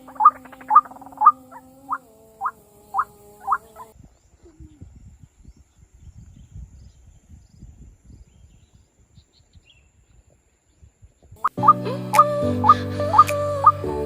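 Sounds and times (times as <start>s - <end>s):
faint high chirps: 0.0s - 5.2s.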